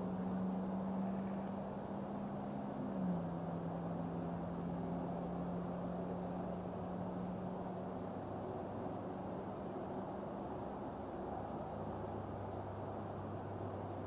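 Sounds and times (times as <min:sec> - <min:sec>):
engine drone: 0:00.0 - 0:09.6.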